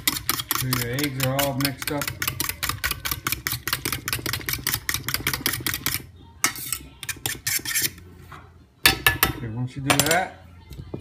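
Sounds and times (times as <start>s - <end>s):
utensil beating eggs in a bowl: 0.0s - 8.0s.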